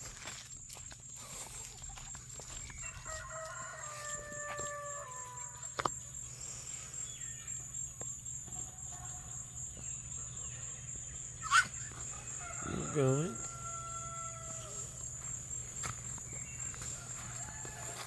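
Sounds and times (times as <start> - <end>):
faint fowl calls: 2.5 - 18.0
rooster crowing: 2.7 - 5.8, 11.4 - 18.0.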